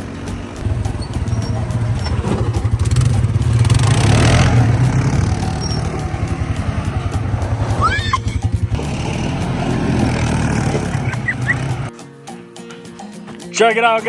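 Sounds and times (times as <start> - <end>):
atv engine running: 0.0 - 11.9.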